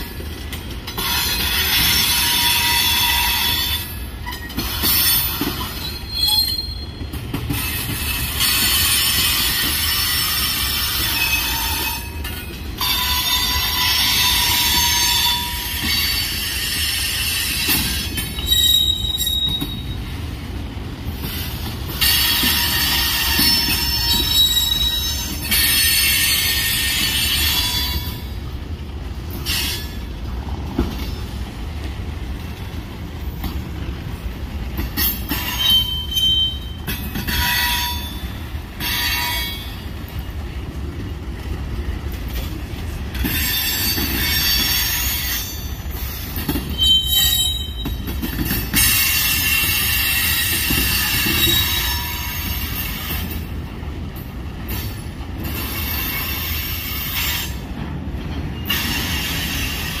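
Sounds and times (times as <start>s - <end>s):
freight train rumbling past: 0.0s - 60.0s
metal wheel squeals: 1.0s - 7.1s, 18.4s - 20.0s, 22.0s - 28.2s, 46.6s - 48.1s.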